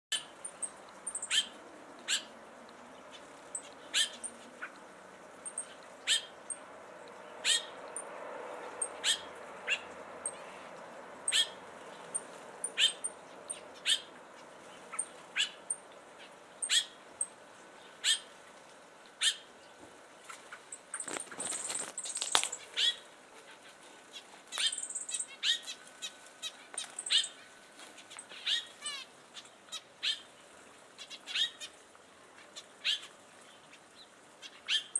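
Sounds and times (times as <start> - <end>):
faint high finch chirps: 0.1 - 2.4, 3.0 - 4.8, 5.4 - 6.6, 7.4 - 8.1, 8.7 - 18.3, 19.2 - 30.3, 31.0 - 31.8, 32.4 - 34.9
wings flapping: 20.3 - 22.6.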